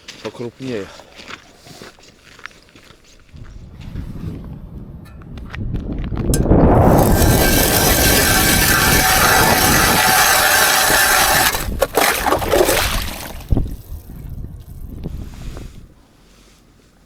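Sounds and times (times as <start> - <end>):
wind buffeting microphone: 3.3 - 16.0.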